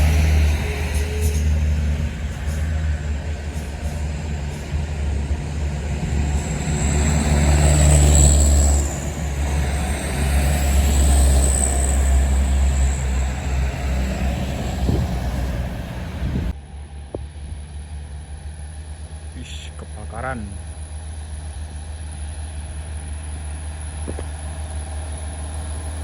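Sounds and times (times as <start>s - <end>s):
truck diesel engine revving: 0.0s - 16.5s.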